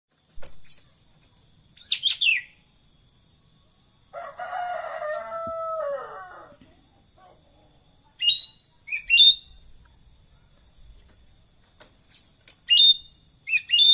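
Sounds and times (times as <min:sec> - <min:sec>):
bird calling: 0:07.2 - 0:10.8, 0:11.6 - 0:13.9.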